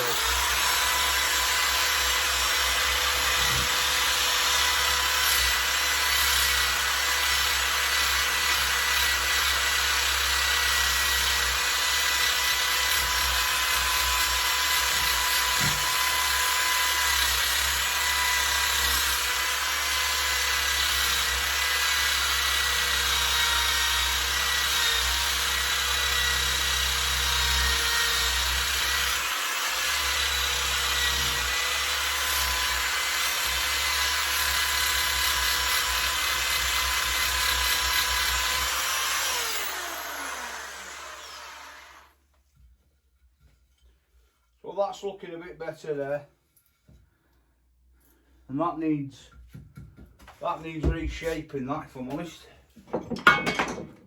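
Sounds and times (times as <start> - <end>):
electric drill whine: 0.0 - 42.2.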